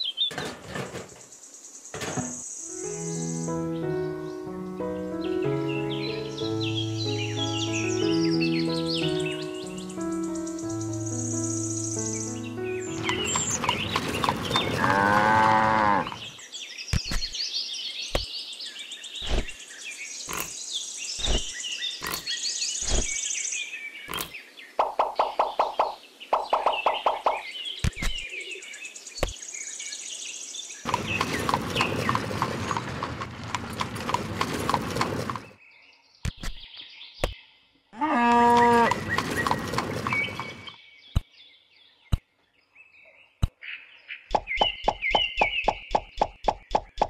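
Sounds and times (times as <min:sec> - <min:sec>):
sharp clicks: 0:24.1 - 0:27.2
long animal call: 0:38.0 - 0:39.0.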